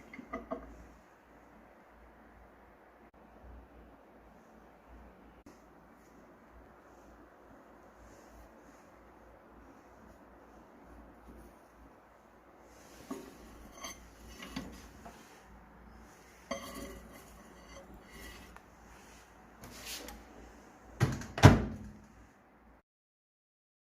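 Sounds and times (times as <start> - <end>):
kitchen items clattering: 13.0 - 15.3, 16.4 - 18.6.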